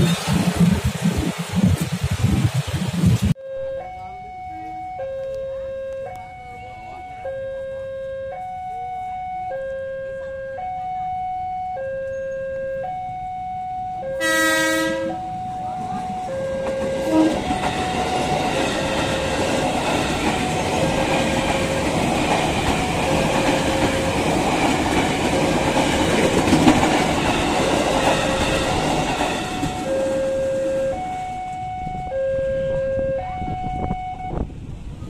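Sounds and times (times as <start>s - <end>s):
two-tone crossing alarm: 3.4s - 34.5s
train wheels clattering on rails: 15.8s - 30.7s.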